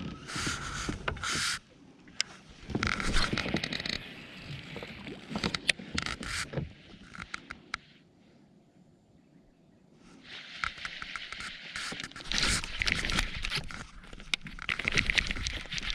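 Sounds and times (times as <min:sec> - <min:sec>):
gear scraping and clicking: 0:00.0 - 0:01.6, 0:02.2 - 0:04.1, 0:05.3 - 0:07.8, 0:10.5 - 0:15.9.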